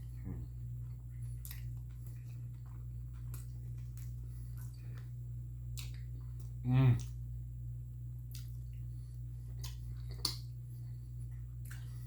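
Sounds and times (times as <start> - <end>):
person chewing food: 0.0 - 7.2, 8.1 - 12.0
low hum: 0.0 - 12.0
wet mouth clicks: 8.3 - 8.8.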